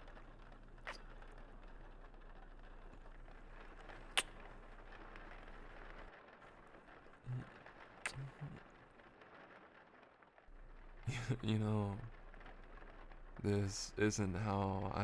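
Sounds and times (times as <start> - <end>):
soft steady rain: 0.0 - 15.0
lip smacks kissing: 4.1 - 4.4, 8.1 - 8.6
low mouth sounds: 7.3 - 8.6.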